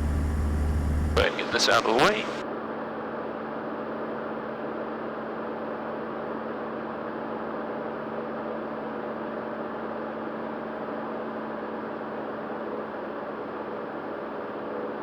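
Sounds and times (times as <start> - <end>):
propeller plane engine droning: 0.0 - 2.4.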